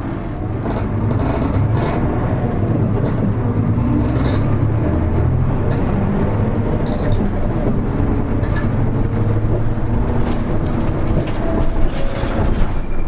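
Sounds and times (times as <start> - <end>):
bus diesel engine droning: 0.0 - 13.0
road noise: 0.0 - 13.0
light clicks and rattles: 10.2 - 12.9.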